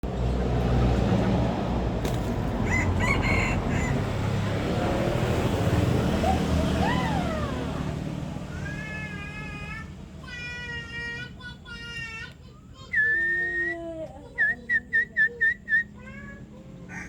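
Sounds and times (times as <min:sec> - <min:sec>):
rooster crowing: 0:02.5 - 0:04.6.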